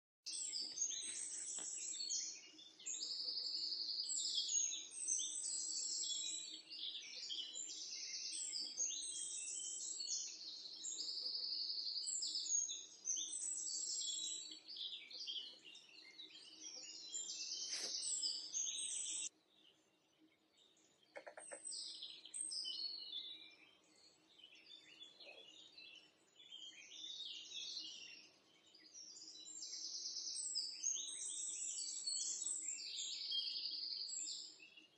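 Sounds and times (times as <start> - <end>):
small birds chirping and twittering: 0.3 - 34.9.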